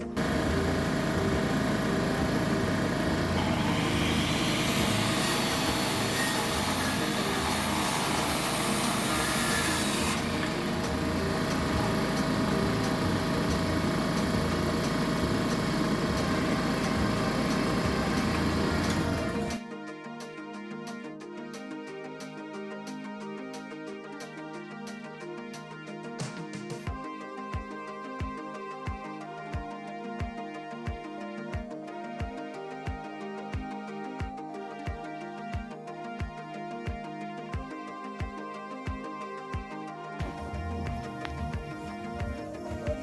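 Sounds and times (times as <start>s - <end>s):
mechanical din of power equipment: 0.0s - 19.6s
power saw cutting wood: 0.0s - 19.6s.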